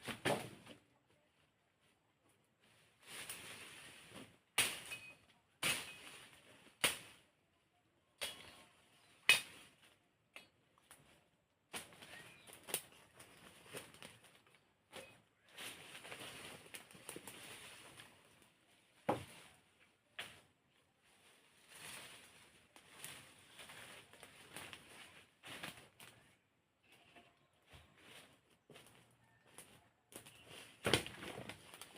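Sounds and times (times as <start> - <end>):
machete chopping wood: 9.2 - 9.6.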